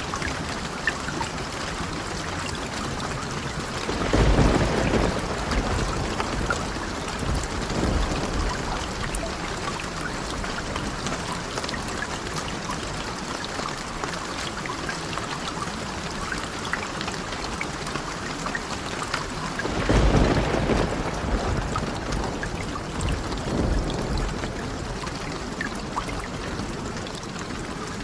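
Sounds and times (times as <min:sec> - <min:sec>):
raindrops ticking: 0:00.0 - 0:28.0
steady rain: 0:00.0 - 0:28.0
thunder rumbling: 0:03.5 - 0:11.6, 0:19.5 - 0:27.1.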